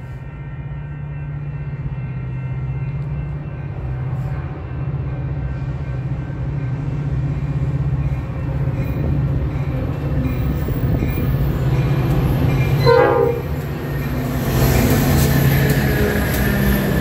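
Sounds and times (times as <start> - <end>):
diesel locomotive drone: 0.0 - 17.0
train rumble and rail noise: 0.0 - 17.0
train horn blast: 12.8 - 13.6.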